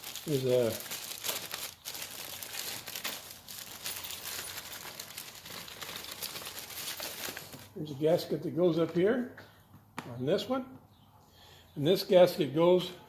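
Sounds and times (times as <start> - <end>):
packaging crinkling: 0.0 - 7.7.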